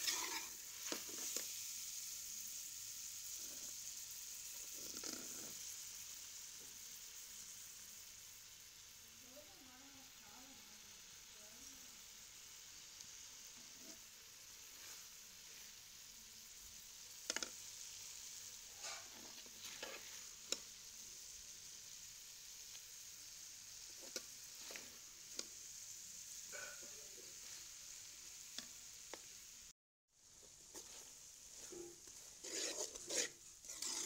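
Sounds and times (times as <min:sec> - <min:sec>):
metal spatula scraping a pot: 0:00.0 - 0:01.4, 0:13.6 - 0:14.0, 0:18.7 - 0:20.3, 0:31.6 - 0:34.0
food sizzling in a pot: 0:00.0 - 0:34.0.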